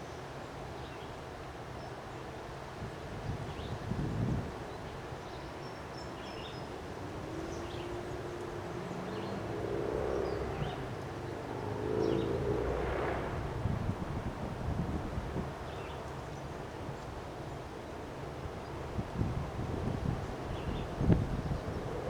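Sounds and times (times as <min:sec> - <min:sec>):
wind gusting on microphone: 0:02.8 - 0:04.7, 0:06.8 - 0:22.0
vehicle passing: 0:06.8 - 0:15.9.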